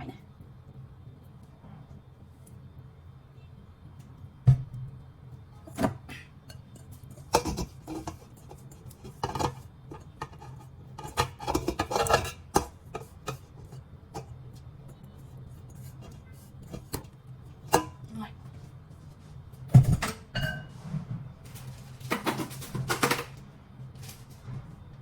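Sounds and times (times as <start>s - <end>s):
utensils clattering in cooking pot: 5.7s - 14.3s, 15.6s - 18.1s, 19.7s - 20.8s, 21.5s - 23.4s.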